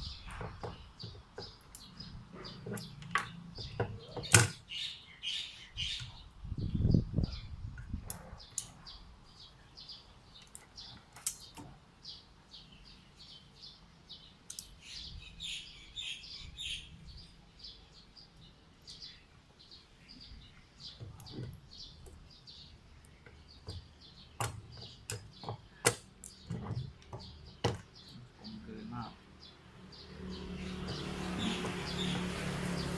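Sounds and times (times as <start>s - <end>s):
small birds chirping: 0.0s - 32.9s
sharp clicks of small tools: 14.5s - 14.7s.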